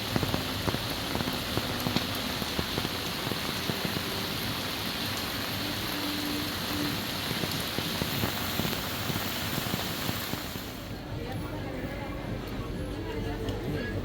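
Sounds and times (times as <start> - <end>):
rain falling: 0.0 - 11.1.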